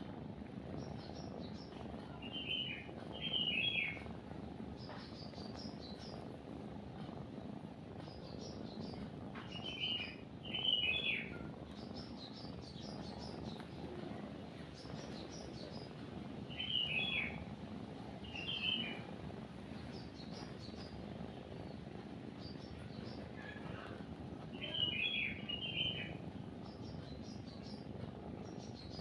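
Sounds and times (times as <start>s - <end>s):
cat purring: 0.0s - 29.0s
songbirds chirping and singing: 0.8s - 4.1s, 8.0s - 13.8s, 16.5s - 17.5s, 18.2s - 19.1s, 21.6s - 29.0s.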